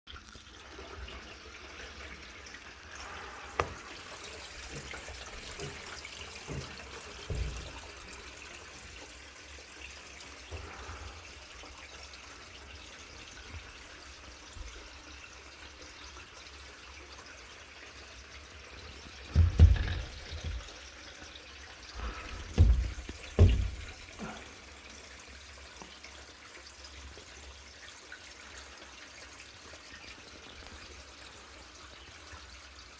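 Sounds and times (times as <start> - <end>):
water trickling and dripping: 0.1 - 32.9
low knocks: 19.3 - 20.7, 22.0 - 24.4.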